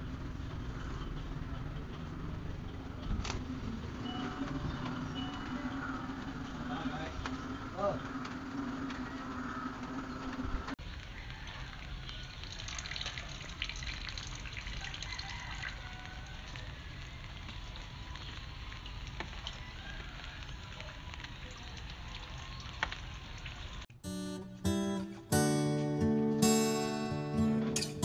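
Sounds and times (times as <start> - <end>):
rain pattering: 0.0 - 23.9
drips: 11.0 - 16.6.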